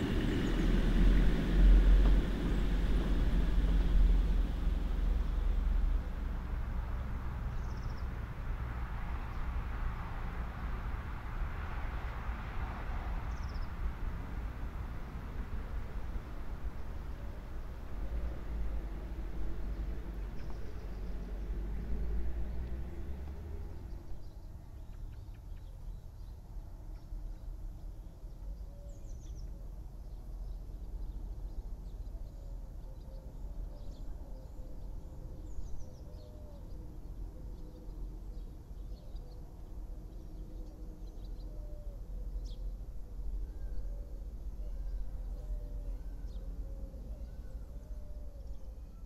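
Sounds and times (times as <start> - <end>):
low steady rumble: 0.0 - 49.0
faint bird chirps: 43.4 - 49.0.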